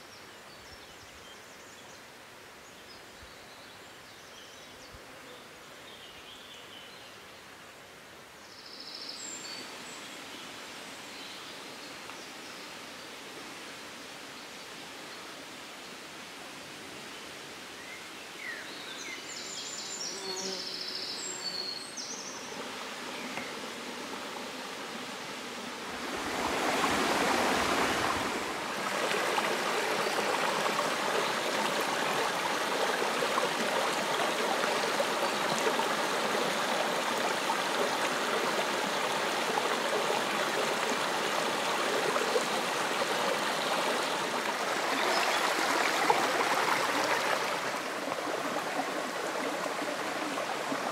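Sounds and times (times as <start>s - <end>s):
rushing river water: 21.1s - 50.9s.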